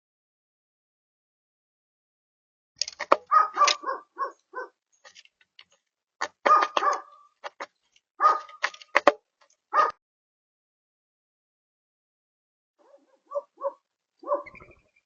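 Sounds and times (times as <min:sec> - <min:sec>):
woodpecker calling: 0:03.1 - 0:05.2, 0:13.3 - 0:15.0.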